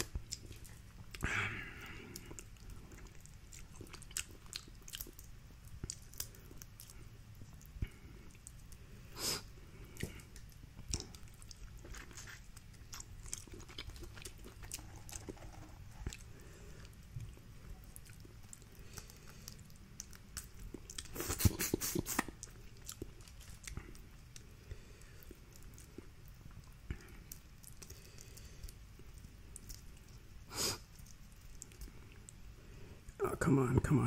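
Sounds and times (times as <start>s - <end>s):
chewing and biting seafood: 0.0s - 8.8s, 9.8s - 30.2s
wet mouth clicks: 20.0s - 23.1s.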